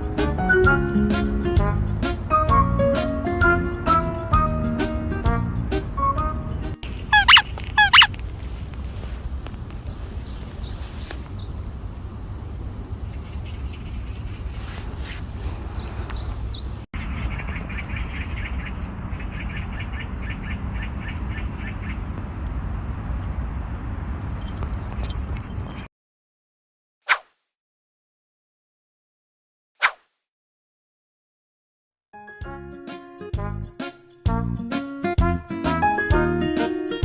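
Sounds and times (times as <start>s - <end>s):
birds chirping: 6.0s - 25.9s
bird rapid repeated notes: 7.0s - 8.1s.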